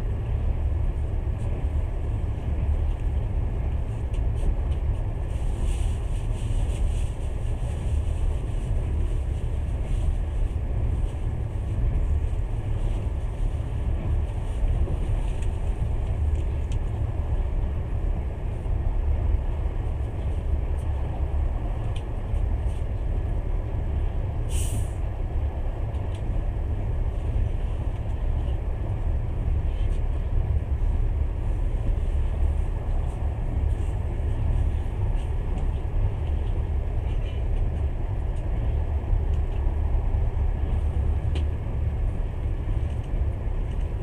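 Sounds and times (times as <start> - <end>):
train carriage rumbling: 0.0 - 44.0
short sharp hiss: 24.5 - 25.0.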